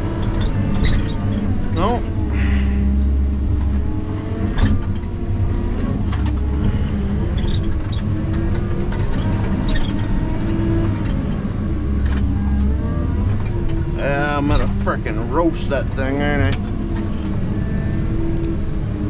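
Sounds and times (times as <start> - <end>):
diesel engine working hard: 0.0 - 19.0.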